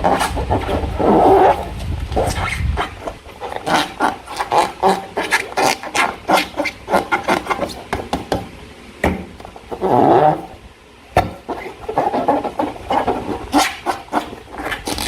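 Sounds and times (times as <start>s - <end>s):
slime squelching by hand: 0.0s - 7.9s.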